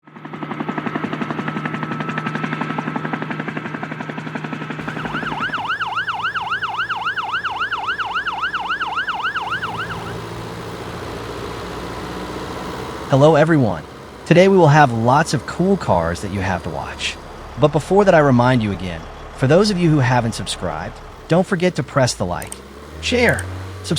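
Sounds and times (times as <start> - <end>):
engine hum: 0.0 - 23.9
helicopter rotor chopping: 0.1 - 23.9
emergency siren yelping: 4.8 - 17.6, 21.3 - 23.9.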